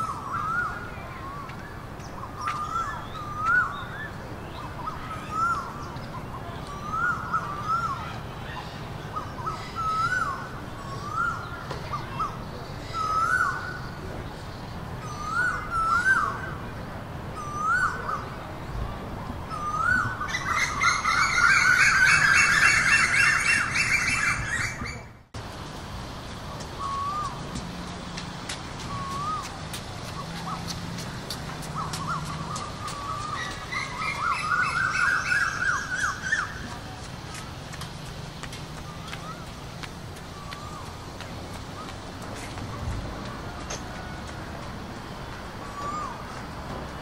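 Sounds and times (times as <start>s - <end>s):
bird whistled call: 0.0s - 5.8s, 6.7s - 8.6s, 19.5s - 25.1s, 26.8s - 27.4s, 28.8s - 29.6s, 31.8s - 36.6s, 45.6s - 46.2s
burst of overlapping bird calls: 0.0s - 18.4s, 19.5s - 25.2s, 28.8s - 36.8s, 38.8s - 42.1s.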